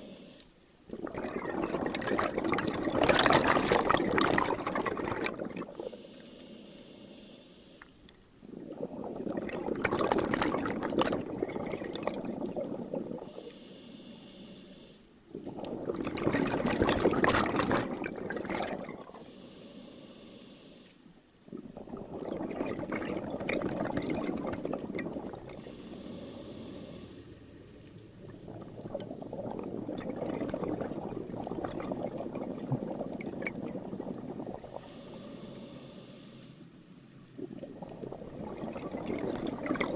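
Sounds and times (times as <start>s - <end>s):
regulator inhale hiss: 0.0s - 0.6s, 5.8s - 8.1s, 13.2s - 15.2s, 19.1s - 21.2s, 25.5s - 27.6s, 34.6s - 36.8s.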